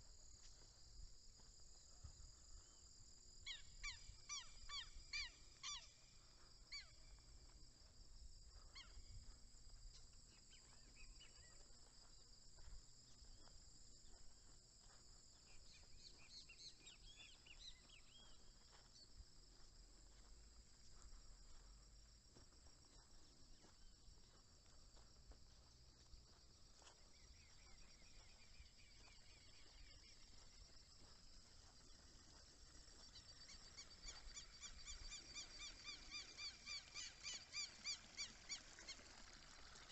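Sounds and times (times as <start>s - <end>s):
crickets and insects chorus: 0.0s - 39.9s
bird chirps: 3.5s - 6.0s, 15.4s - 18.8s, 32.9s - 39.2s.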